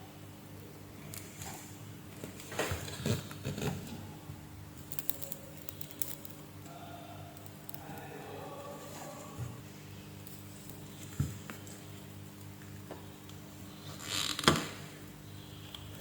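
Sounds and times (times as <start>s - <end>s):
steady low hum: 0.0s - 16.0s
small objects clicking and tapping: 4.8s - 6.6s, 7.4s - 8.1s, 10.2s - 11.6s.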